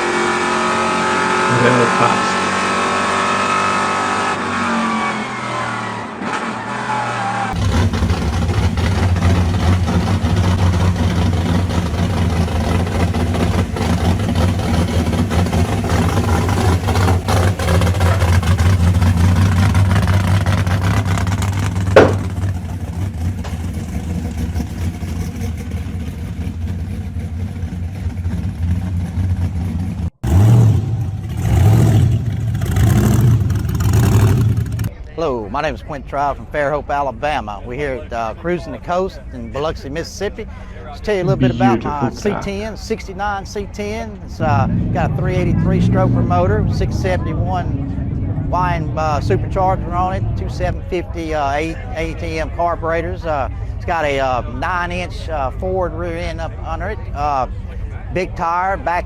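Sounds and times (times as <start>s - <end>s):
car engine revving: 0.0s - 34.9s, 43.8s - 57.5s
deep engine rumble: 7.5s - 35.0s, 40.5s - 59.0s
sharp crack: 20.7s - 22.8s.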